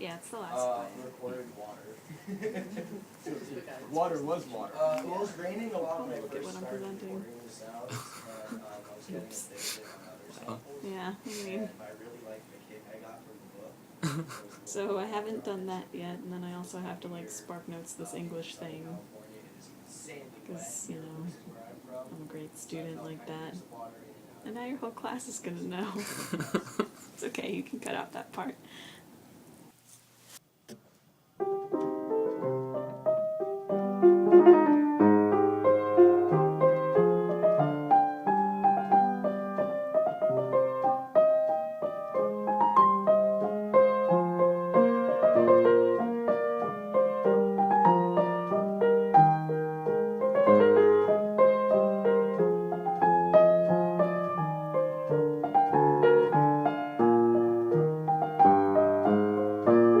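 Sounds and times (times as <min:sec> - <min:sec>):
solo piano music: 0:31.4 - 1:00.0.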